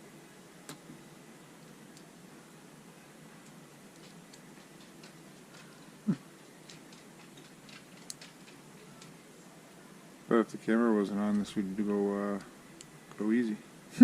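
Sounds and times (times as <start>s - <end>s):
small metal parts clicking: 3.4s - 9.2s.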